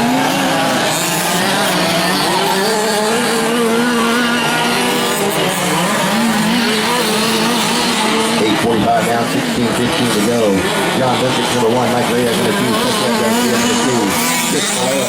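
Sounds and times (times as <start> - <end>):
rc truck engines revving: 0.0 - 15.0.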